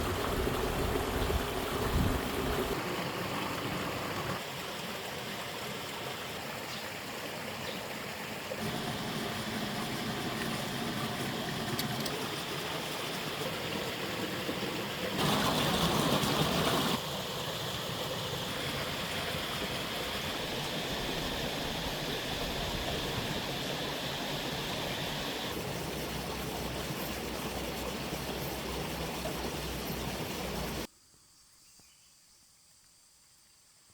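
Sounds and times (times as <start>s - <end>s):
running water: 0.0s - 30.9s.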